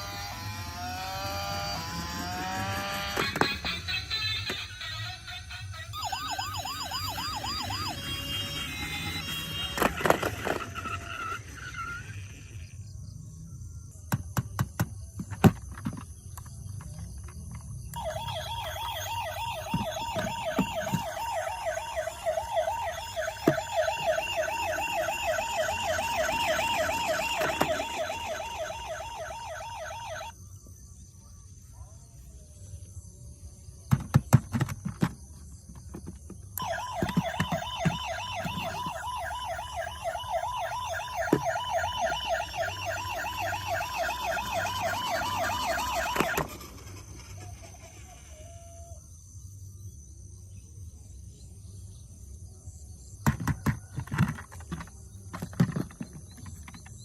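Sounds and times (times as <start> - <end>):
toy siren warbling: 0.0 - 12.7, 17.9 - 30.3, 36.6 - 49.0.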